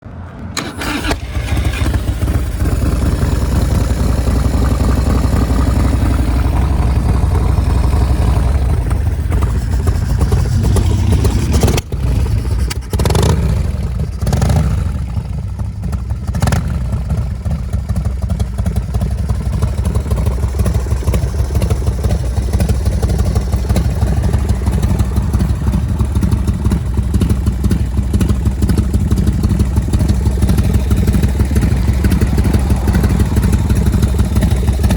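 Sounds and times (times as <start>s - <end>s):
motorcycle engine revving and idling: 0.6s - 34.9s.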